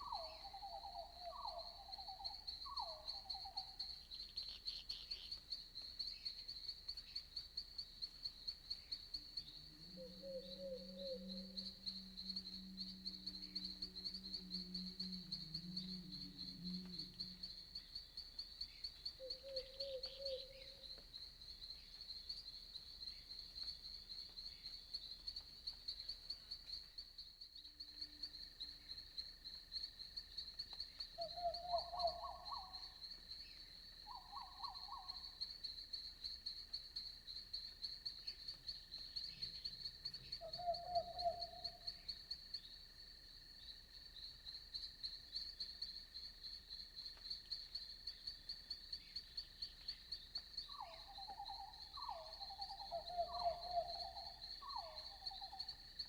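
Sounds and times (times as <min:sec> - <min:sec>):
night insects chirping: 0:00.0 - 0:56.0
low animal calls: 0:09.8 - 0:17.6.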